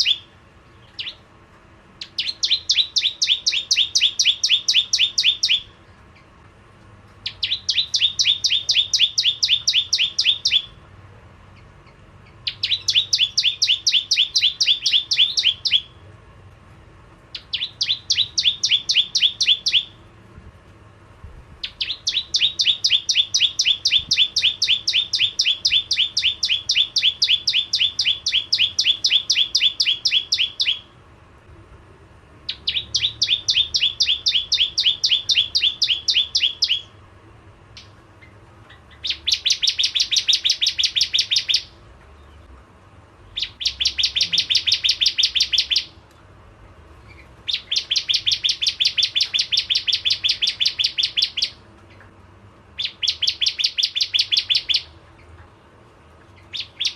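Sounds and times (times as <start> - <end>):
bird calling sharp repeated notes: 0.0 - 1.2, 2.0 - 5.8, 7.2 - 10.8, 11.9 - 16.0, 17.3 - 20.0, 21.6 - 31.0, 32.5 - 37.0, 37.7 - 41.8, 43.4 - 46.0, 47.1 - 52.1, 52.8 - 55.0, 56.4 - 56.9.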